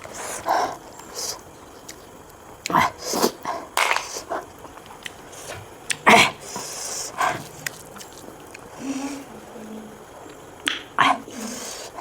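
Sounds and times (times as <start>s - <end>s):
mouth slurping and smacking: 0.0s - 9.5s.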